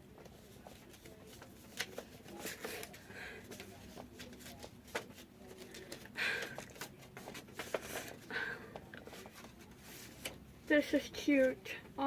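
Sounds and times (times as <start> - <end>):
paper rustling: 0.2 - 8.3, 9.0 - 10.4.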